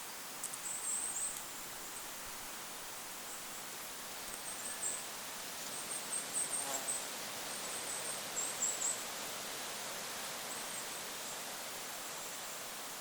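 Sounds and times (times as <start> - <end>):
wind hiss: 0.0 - 13.0.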